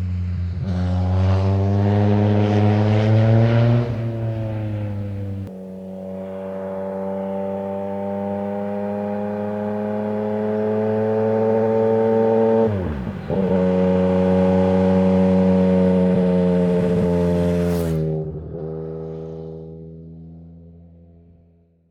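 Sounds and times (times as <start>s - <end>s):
motorcycle engine accelerating: 0.0s - 21.3s
exhaust crack: 2.0s - 19.2s.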